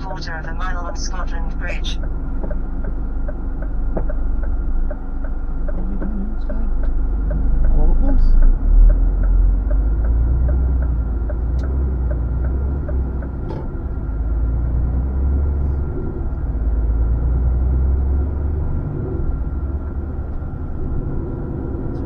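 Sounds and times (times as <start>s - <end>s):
truck diesel engine rumble: 0.0s - 22.0s
turn indicator ticking: 0.0s - 22.0s.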